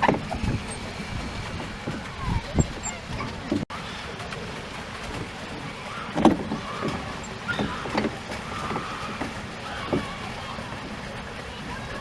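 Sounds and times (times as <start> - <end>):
knocks and splashes: 0.0 - 12.0
water swishing against boat: 0.0 - 12.0.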